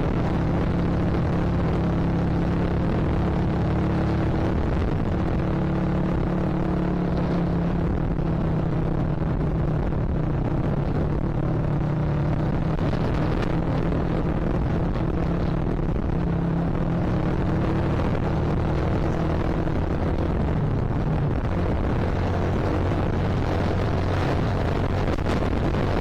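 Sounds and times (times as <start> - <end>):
motorcycle engine cruising: 0.0 - 26.0
wind on microphone: 0.0 - 26.0.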